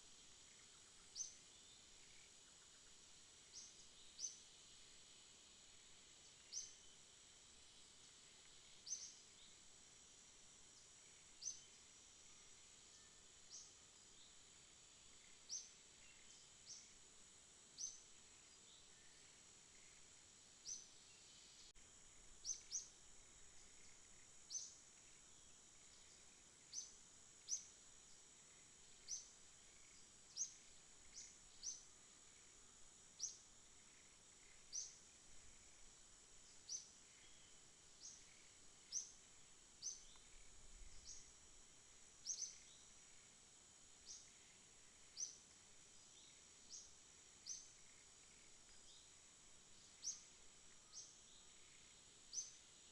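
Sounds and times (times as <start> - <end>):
high-pitched insect buzz: 17.8 - 52.9.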